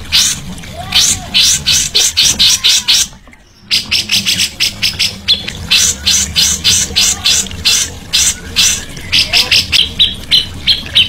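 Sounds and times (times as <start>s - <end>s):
songbird harsh chattering: 3.7s - 11.0s.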